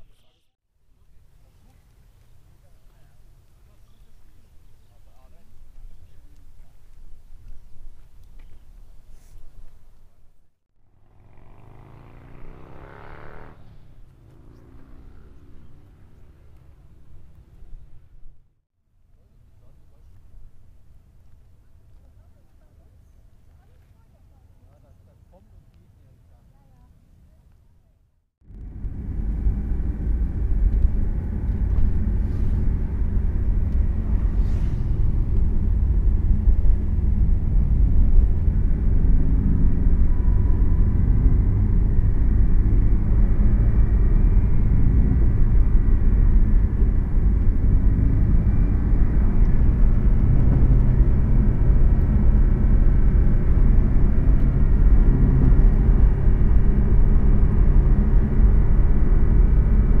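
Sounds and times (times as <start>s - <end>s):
car engine and road drone: 10.8s - 18.6s, 28.4s - 60.0s.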